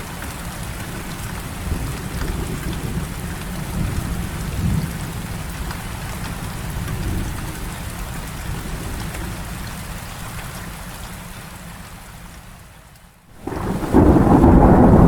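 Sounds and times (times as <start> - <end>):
heavy rain falling: 0.0 - 15.0
distant thunder rumbling: 13.4 - 15.0.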